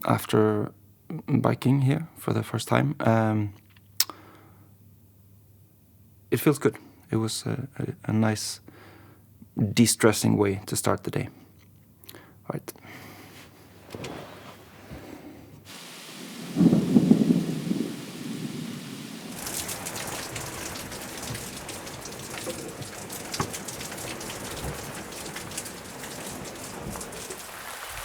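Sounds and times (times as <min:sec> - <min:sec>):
rain drops ticking: 0:15.7 - 0:28.0.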